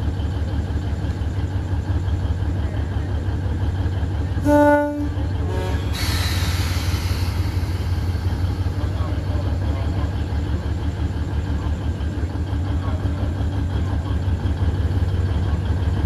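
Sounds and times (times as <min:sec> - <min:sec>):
diesel locomotive engine rumble: 0:00.0 - 0:16.0
train horn toots: 0:04.4 - 0:06.4.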